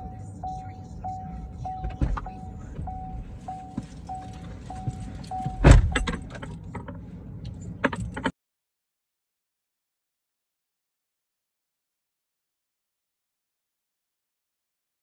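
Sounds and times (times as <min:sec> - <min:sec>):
car door warning chime: 0:00.0 - 0:06.6
car door shutting: 0:01.6 - 0:08.3.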